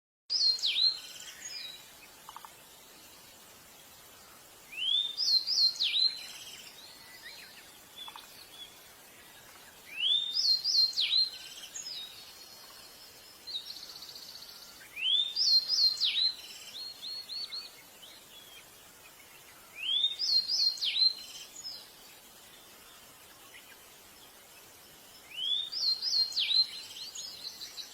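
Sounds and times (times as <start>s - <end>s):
bird whistling song phrases: 0.3s - 1.8s, 4.7s - 7.3s, 9.9s - 12.2s, 13.5s - 17.7s, 19.7s - 21.8s, 25.2s - 27.9s
soft bird twittering: 0.3s - 3.4s, 4.0s - 27.9s.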